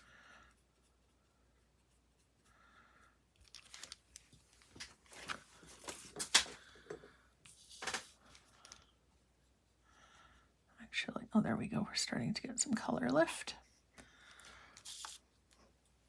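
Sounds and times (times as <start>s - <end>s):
brush pen scrubbing on paper: 0.0s - 2.5s, 14.8s - 15.3s.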